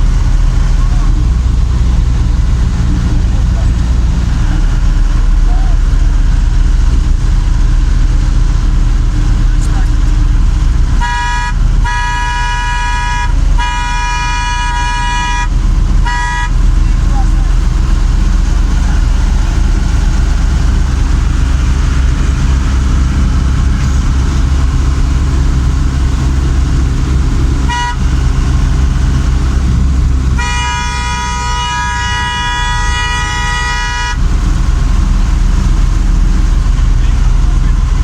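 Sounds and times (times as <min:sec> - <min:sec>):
vehicle rumble: 0:00.0 - 0:38.0
vehicle horn: 0:10.8 - 0:17.0, 0:27.6 - 0:29.2, 0:30.3 - 0:34.3.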